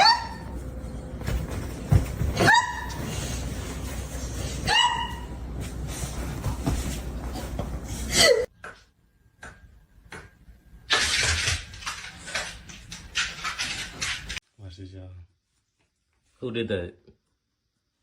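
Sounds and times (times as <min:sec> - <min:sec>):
dog barking: 0:04.7 - 0:05.3.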